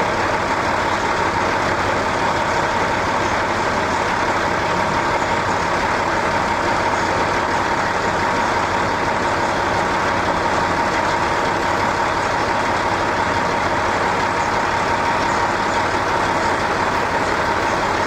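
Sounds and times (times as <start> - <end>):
thin constant whine: 14.4 - 18.0.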